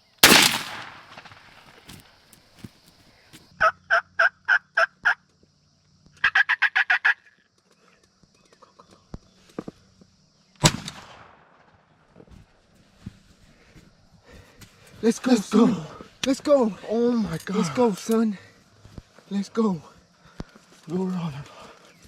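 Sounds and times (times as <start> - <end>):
shotgun blast: 0.0 - 1.9, 10.6 - 11.4.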